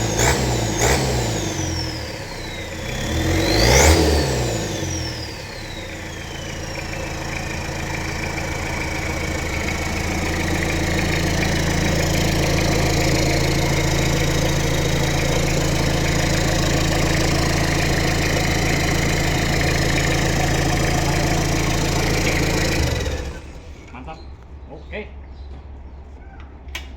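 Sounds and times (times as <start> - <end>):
diesel engine idling: 0.0 - 24.7
turbo whine: 4.8 - 23.7.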